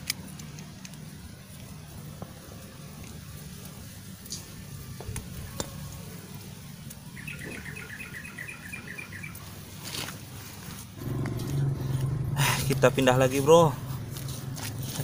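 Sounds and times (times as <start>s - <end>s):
bird chirping rapidly: 7.1s - 9.4s
steady low rumble: 11.0s - 15.0s.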